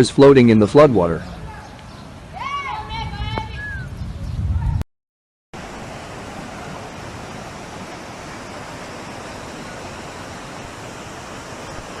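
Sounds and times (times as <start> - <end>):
storm water rushing: 5.6 - 12.0.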